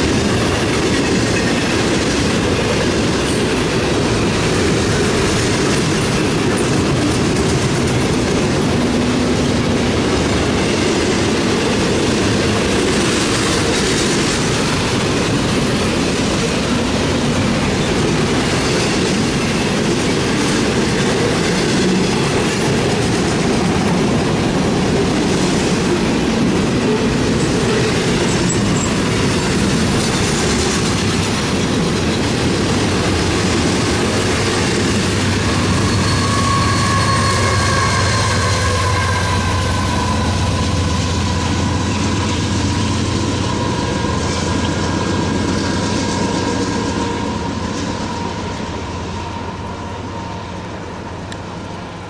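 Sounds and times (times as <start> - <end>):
train cars rolling on rails: 0.0 - 52.0
high wheel squeal: 34.1 - 51.8.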